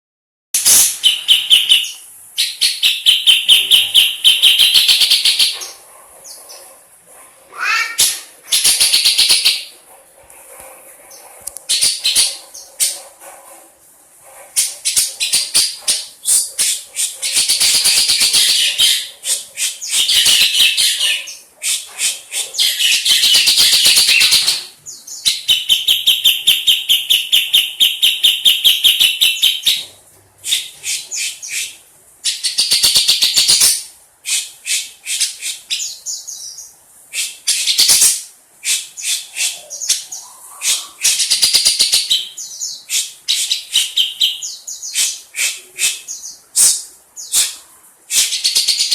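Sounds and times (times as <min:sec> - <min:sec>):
bird harsh chattering calls: 0:07.5 - 0:09.7, 0:11.1 - 0:13.0, 0:14.5 - 0:29.8, 0:37.2 - 0:48.9.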